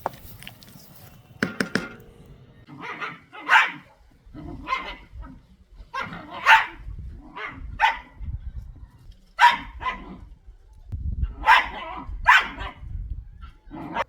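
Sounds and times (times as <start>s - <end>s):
dog barking: 2.7s - 5.2s, 5.9s - 8.2s, 9.4s - 10.2s, 11.3s - 12.9s.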